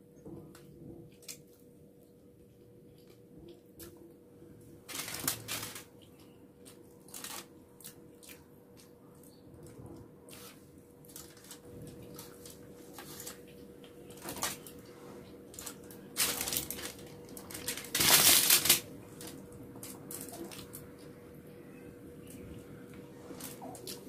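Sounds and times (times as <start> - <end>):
foil rustling: 4.9 - 5.9, 7.1 - 7.5, 10.4 - 13.4, 14.1 - 14.8, 15.5 - 20.7.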